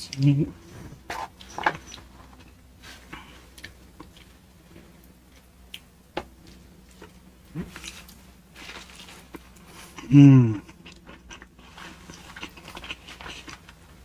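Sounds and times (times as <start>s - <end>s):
food crunching: 5.0s - 14.0s
chewing food: 8.8s - 13.8s.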